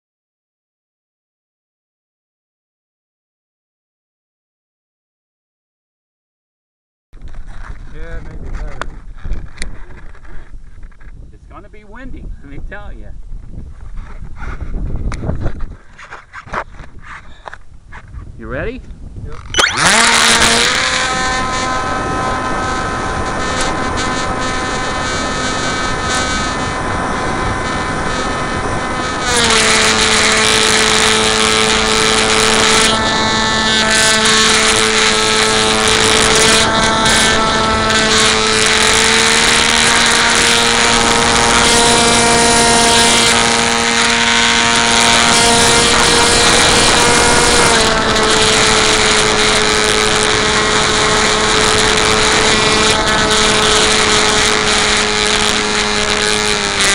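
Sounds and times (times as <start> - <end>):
model plane motor whining: 19.4 - 56.9.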